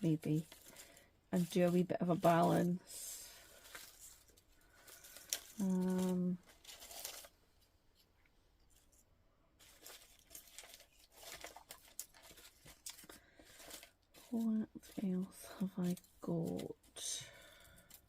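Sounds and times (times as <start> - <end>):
paper and card rustling: 0.0 - 7.4, 9.6 - 18.0.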